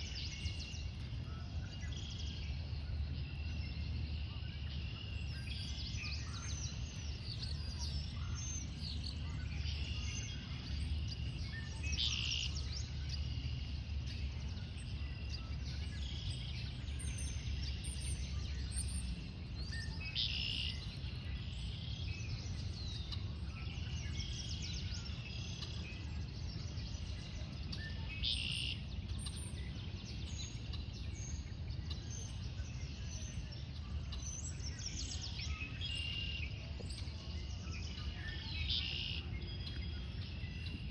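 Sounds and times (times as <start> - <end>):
steady low rumble: 0.0 - 27.8, 28.8 - 40.9
loud bird song: 0.0 - 40.9
songbirds calling and singing: 0.0 - 40.9.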